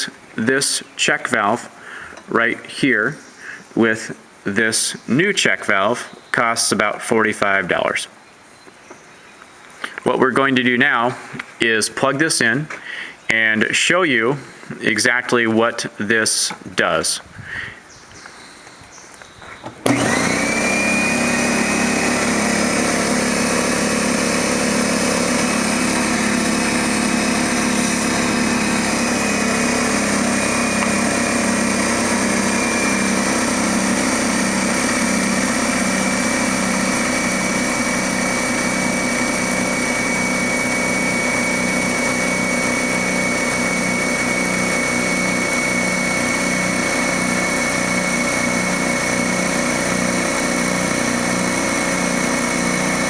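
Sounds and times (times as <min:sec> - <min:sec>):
air compressor running: 0:19.8 - 0:53.0.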